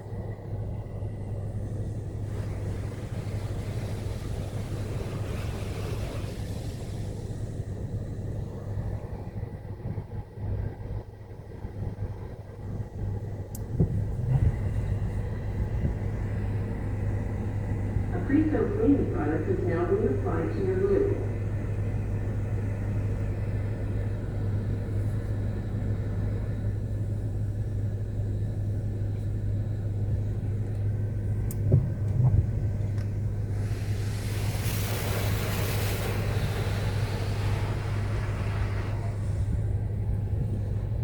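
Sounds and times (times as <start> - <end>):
car wash drone: 0.0 - 41.0
hissing spray over car: 1.8 - 9.3, 31.6 - 40.9.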